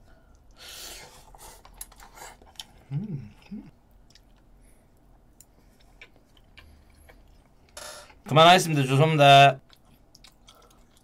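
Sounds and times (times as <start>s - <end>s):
closed-mouth hums: 2.8s - 3.8s
chewing noodles: 9.6s - 11.0s.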